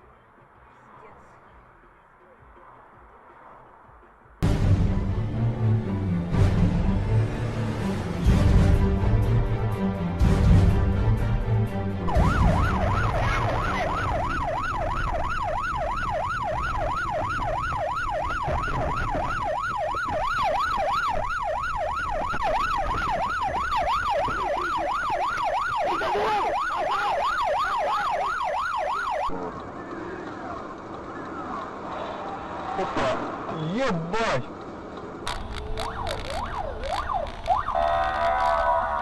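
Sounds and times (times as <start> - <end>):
music: 1.1 - 14.1
police siren yelping: 12.1 - 29.3, 35.3 - 39.0.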